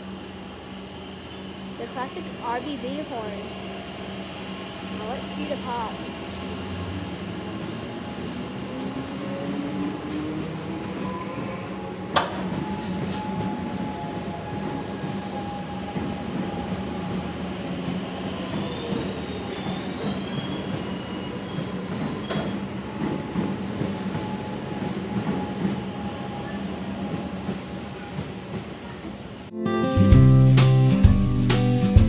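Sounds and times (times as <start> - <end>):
wavering wheel squeal: 12.6 - 28.1.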